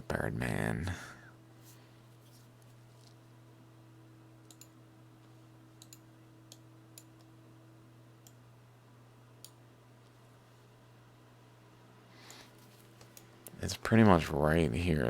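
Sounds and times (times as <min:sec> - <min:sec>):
low steady hum: 0:00.0 - 0:15.0
computer clicks: 0:04.4 - 0:04.8, 0:05.8 - 0:07.3.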